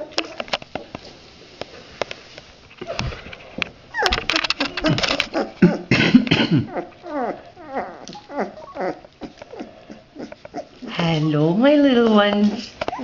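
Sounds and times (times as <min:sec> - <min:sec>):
puppies yelping and whining: 0:03.9 - 0:05.9, 0:06.7 - 0:11.5, 0:12.6 - 0:13.0.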